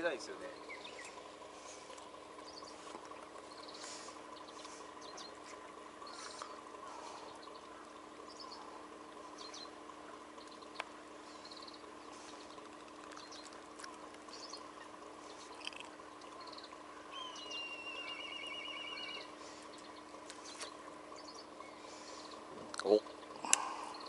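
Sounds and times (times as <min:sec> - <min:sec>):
songbirds chirping: 0:00.0 - 0:24.0
faint lapping water: 0:18.8 - 0:24.0.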